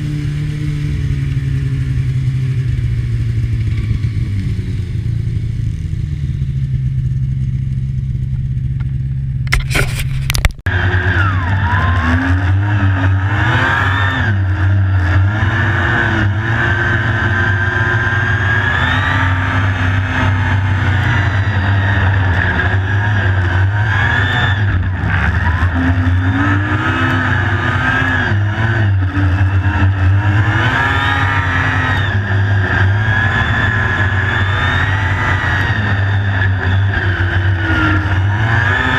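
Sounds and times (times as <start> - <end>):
snowmobile engine revving: 0.0 - 8.0, 9.5 - 38.9.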